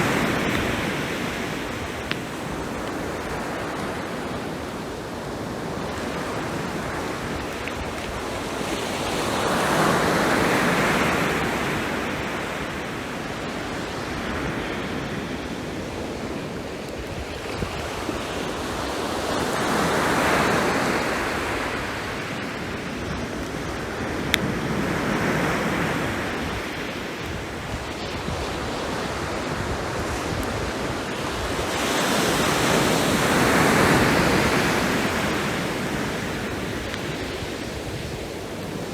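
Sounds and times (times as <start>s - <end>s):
sea waves breaking on shore: 0.0s - 38.9s
fire crackle: 0.1s - 4.9s, 34.3s - 38.9s.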